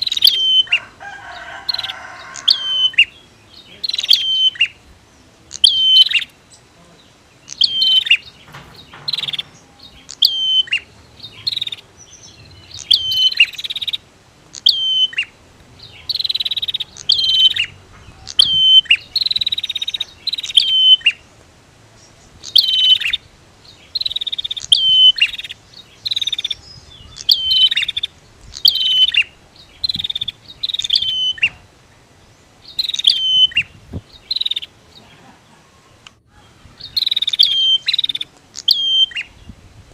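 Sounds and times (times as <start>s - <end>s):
bird buzzy trills: 0.0s - 35.0s, 35.8s - 39.6s
birds calling sharp high notes: 0.0s - 39.6s.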